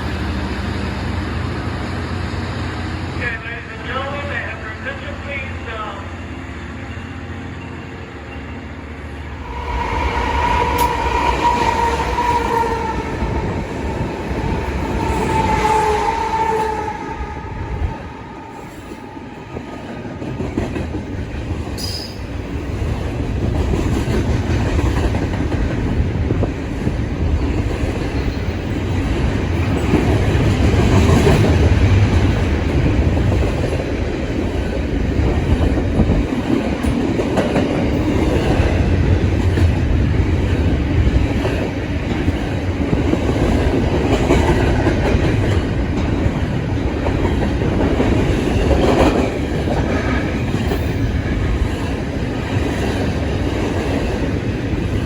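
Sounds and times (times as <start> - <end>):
train wheels clickety-clack: 9.4 - 16.6, 18.7 - 55.0.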